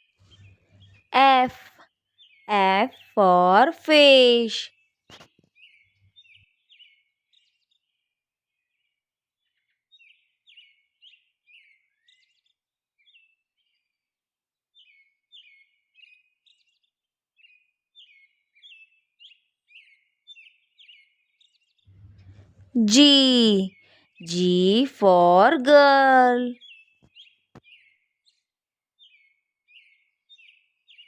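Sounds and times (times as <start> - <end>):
bird chirping: 0.0 - 1.4.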